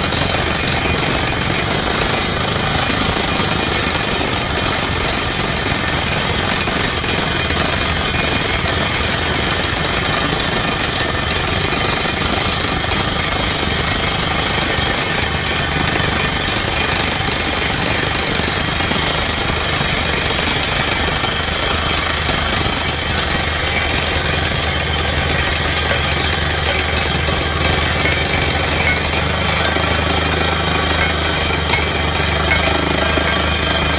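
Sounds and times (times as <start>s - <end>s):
drilling rig hammering: 0.0s - 33.9s
low engine drone: 13.3s - 33.9s.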